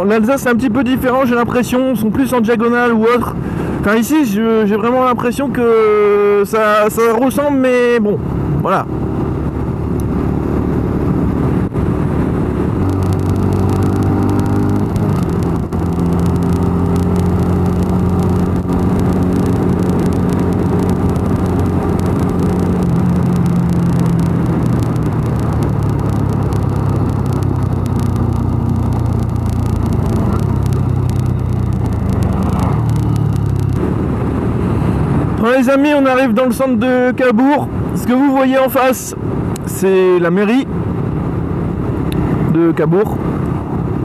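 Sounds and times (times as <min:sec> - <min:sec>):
wind rushing on microphone: 0:00.0 - 0:44.0
motorcycle engine running: 0:08.3 - 0:35.4.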